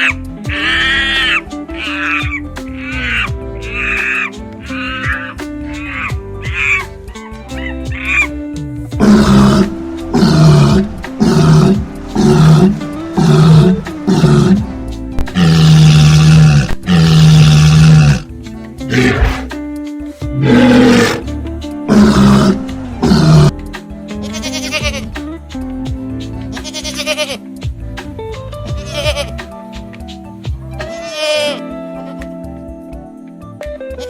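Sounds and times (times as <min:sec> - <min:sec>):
background music: 0:00.0 - 0:34.0
big cat roaring: 0:09.0 - 0:18.3, 0:18.9 - 0:19.5, 0:20.4 - 0:21.3, 0:21.9 - 0:23.5.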